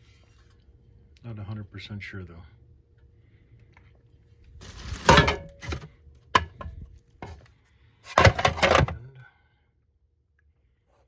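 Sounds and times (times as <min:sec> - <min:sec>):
rummaging through parts: 0:04.6 - 0:09.0
hard parts clattering and knocking: 0:08.1 - 0:09.0.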